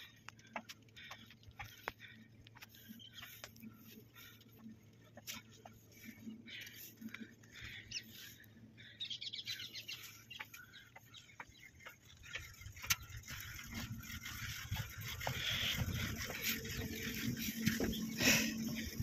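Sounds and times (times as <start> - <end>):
small ticks: 0.0 - 8.6, 9.4 - 18.9
distant birds chirping: 0.0 - 19.0.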